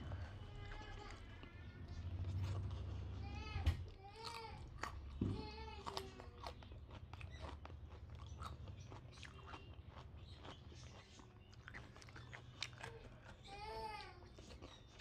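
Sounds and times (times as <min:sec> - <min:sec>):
wet chewing mouth clicks: 0:05.8 - 0:13.5.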